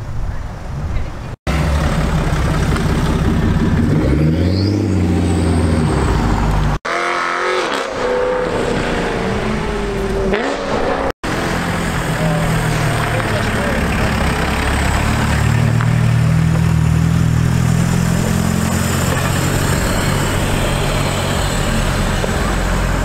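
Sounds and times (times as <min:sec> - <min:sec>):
car driving up: 0:01.5 - 0:06.8
car engine revving: 0:01.5 - 0:23.0
car pulling away: 0:01.5 - 0:23.0.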